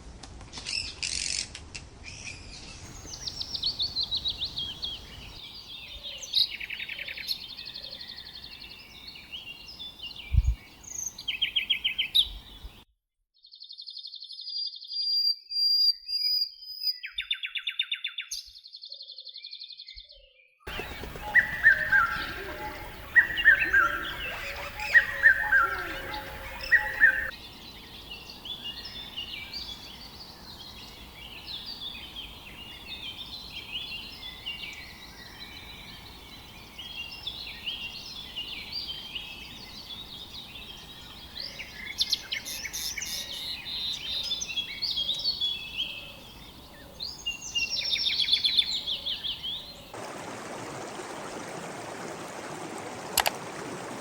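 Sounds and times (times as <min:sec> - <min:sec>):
running water rushing: 0:20.7 - 0:38.9, 0:49.5 - 0:54.0
birds chirping and calling: 0:20.7 - 0:39.0.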